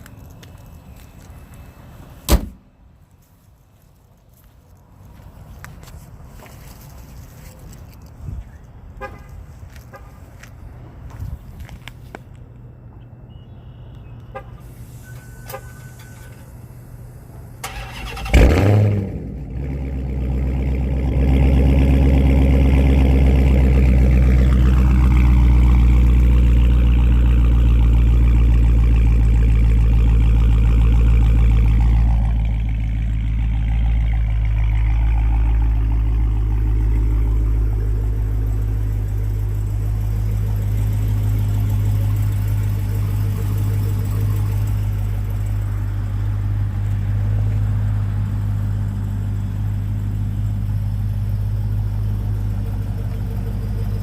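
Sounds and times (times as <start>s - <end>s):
car engine starting and idling: 14.1s - 54.0s.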